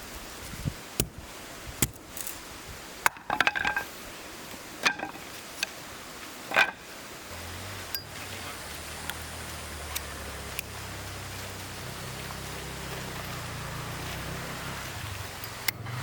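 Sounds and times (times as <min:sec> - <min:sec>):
hard objects knocking and clinking: 0:03.1 - 0:03.9, 0:04.8 - 0:05.2, 0:06.5 - 0:06.8
rattle of clinks: 0:03.2 - 0:03.9, 0:06.5 - 0:06.9.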